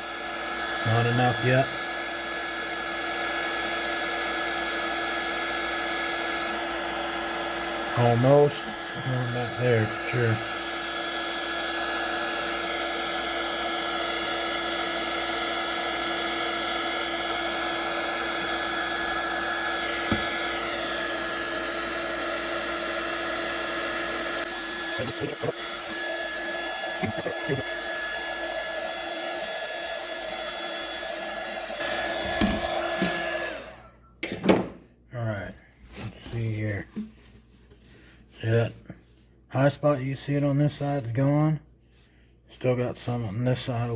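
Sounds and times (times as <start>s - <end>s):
heat gun fan humming: 0.0s - 34.7s.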